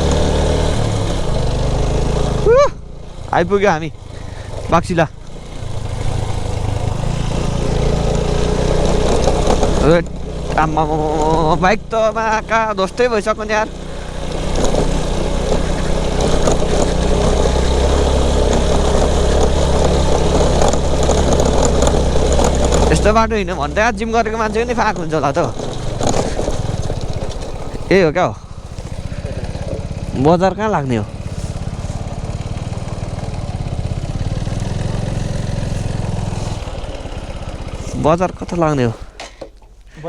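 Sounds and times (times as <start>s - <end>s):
motorcycle engine idling: 0.0s - 40.0s
faint rattling clicks: 13.6s - 23.1s.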